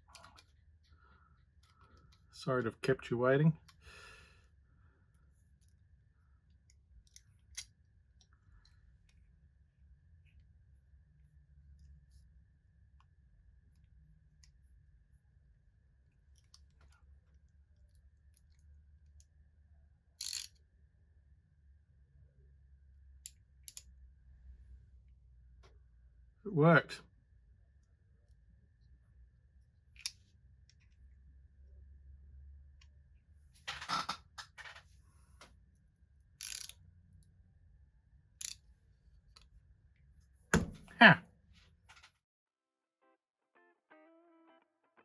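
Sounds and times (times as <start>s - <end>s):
small objects clicking and scraping: 20.2s - 20.5s, 36.4s - 36.8s.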